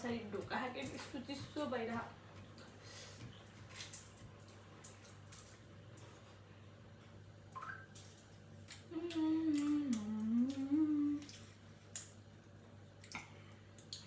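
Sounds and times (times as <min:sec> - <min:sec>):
woman humming: 0:08.9 - 0:11.4.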